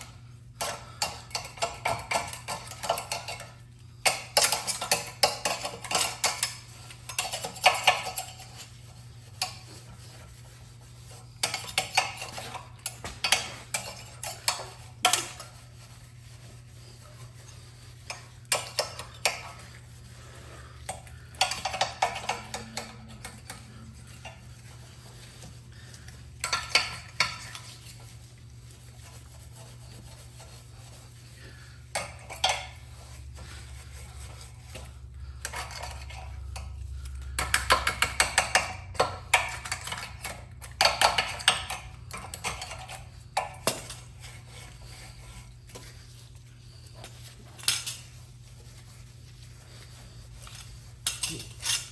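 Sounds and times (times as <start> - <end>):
metal parts and tools clinking: 47.0 - 48.2, 50.4 - 51.9.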